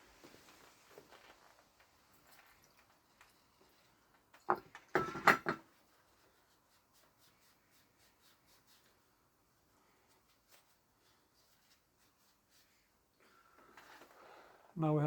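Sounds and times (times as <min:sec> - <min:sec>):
metal parts clattering on workbench: 0:04.4 - 0:05.7.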